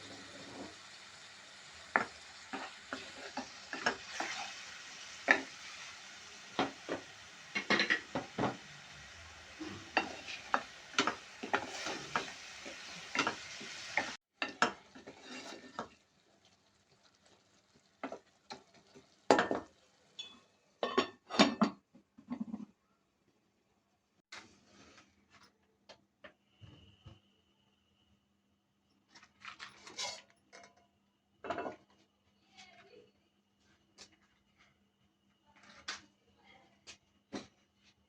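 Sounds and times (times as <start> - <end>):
food sizzling in a pan: 0.0 - 20.9
spoon stirring and scraping: 1.9 - 8.9, 9.6 - 16.1, 29.6 - 30.8.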